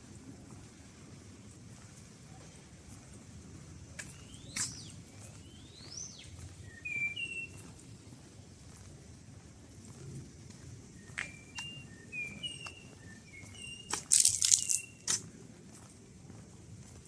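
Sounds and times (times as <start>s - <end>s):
low outdoor hum: 0.0s - 17.0s
small birds chirping: 2.4s - 8.8s, 9.8s - 15.2s.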